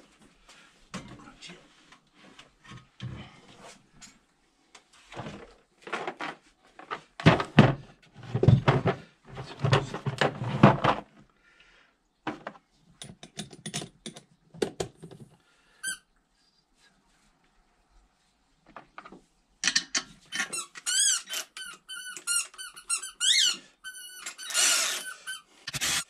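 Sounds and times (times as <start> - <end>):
short squeak: 20.3 - 26.0.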